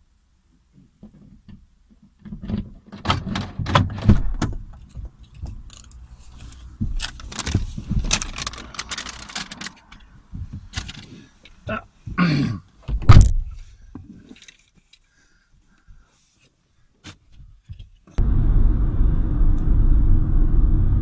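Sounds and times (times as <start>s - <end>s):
knocks and rattles of handling: 0.6s - 12.2s, 12.8s - 15.1s.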